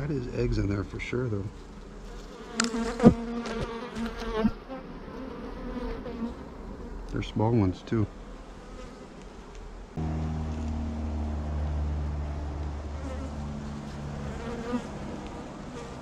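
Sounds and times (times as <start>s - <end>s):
honeybees buzzing: 0.0s - 16.0s
low steady buzz: 4.5s - 16.0s.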